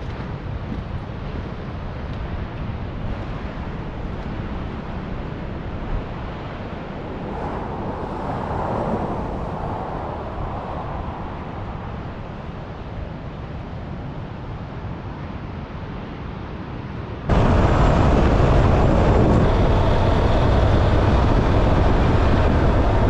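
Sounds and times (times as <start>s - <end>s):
wind rush: 2.8s - 14.7s, 17.2s - 23.0s
motorcycle engine and road noise: 3.0s - 13.3s, 17.3s - 23.0s.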